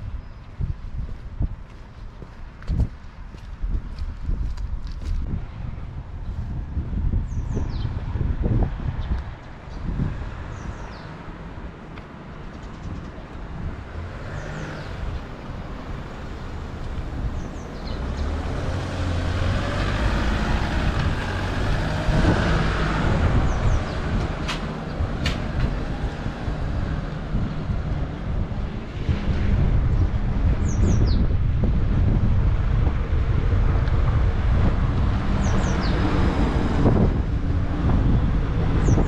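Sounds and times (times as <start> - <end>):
wind buffeting microphone: 0.0 - 39.0
vehicle passing: 13.4 - 30.8, 31.4 - 39.0.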